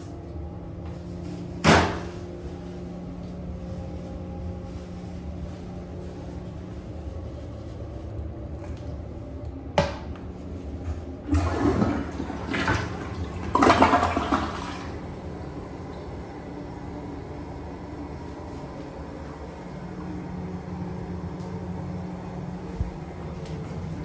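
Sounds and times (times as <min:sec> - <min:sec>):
toilet water rushing: 0:10.2 - 0:24.0.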